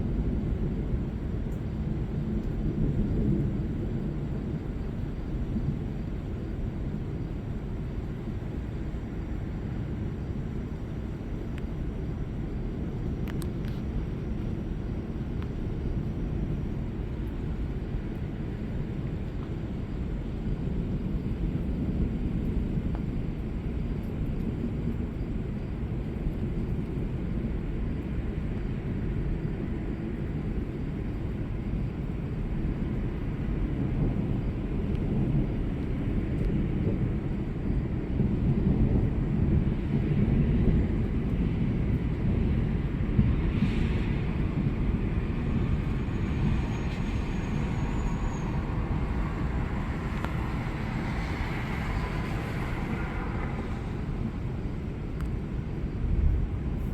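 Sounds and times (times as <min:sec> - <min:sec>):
thunder rumbling: 0:32.4 - 0:56.9.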